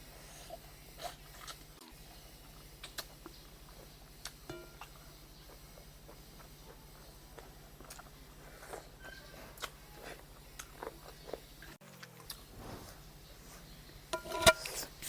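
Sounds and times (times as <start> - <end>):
faint hum: 0.0 - 15.0
person chewing: 0.1 - 13.0
sharp clink: 4.5 - 5.0.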